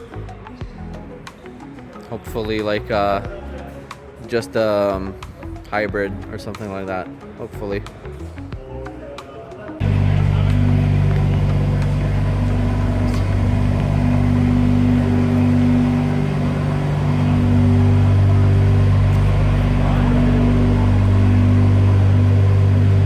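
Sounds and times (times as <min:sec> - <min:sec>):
car engine running: 0:09.8 - 0:23.0.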